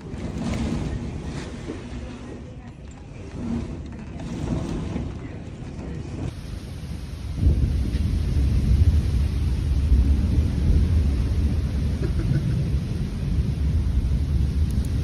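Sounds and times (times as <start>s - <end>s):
storm wind buffeting microphone: 0.0s - 15.0s.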